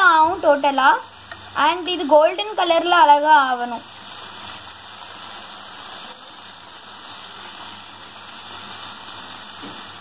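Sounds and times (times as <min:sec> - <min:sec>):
cheese sizzling in hot oil: 0:00.0 - 0:10.0.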